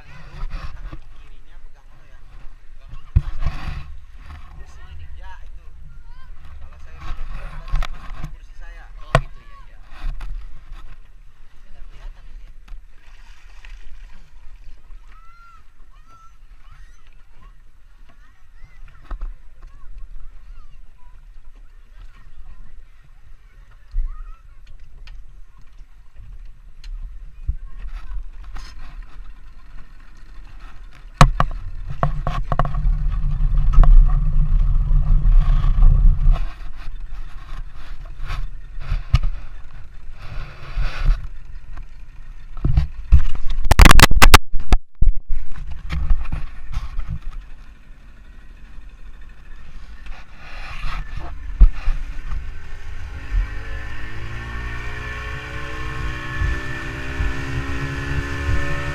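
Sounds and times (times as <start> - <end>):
motorboat engine rumble: 0.0 - 58.9
wind buffeting on microphone: 31.2 - 47.6, 50.2 - 58.9.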